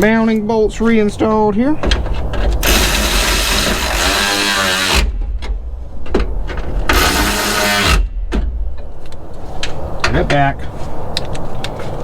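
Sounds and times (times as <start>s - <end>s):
power tool motor whining: 2.6s - 5.2s, 6.9s - 8.1s.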